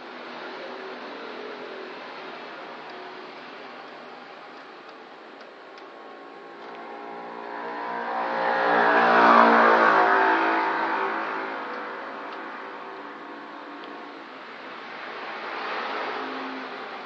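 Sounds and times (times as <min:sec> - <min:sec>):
vehicle engine passing by: 0:06.4 - 0:12.9.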